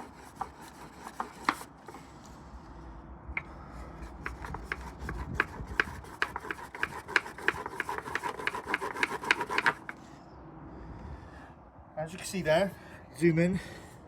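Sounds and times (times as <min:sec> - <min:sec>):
wooden boards rasping rhythmically: 0:00.0 - 0:02.1, 0:03.4 - 0:10.0.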